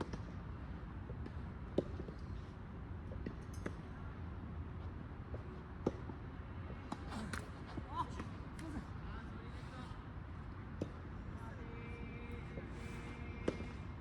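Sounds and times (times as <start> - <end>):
tennis balls hit and bouncing: 0.0 - 8.8, 10.6 - 11.2, 12.6 - 14.0.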